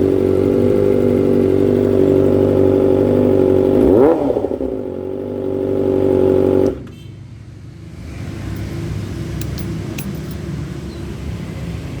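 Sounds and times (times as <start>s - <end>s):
motorcycle exhaust at steady revs: 0.0s - 7.1s, 8.0s - 11.1s.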